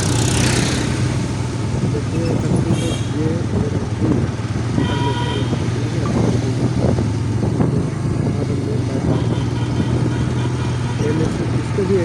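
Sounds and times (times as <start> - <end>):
motorcycle engine running: 0.0 - 12.0
road and wind noise: 0.0 - 12.0
horn honk: 4.8 - 5.7, 9.0 - 11.9.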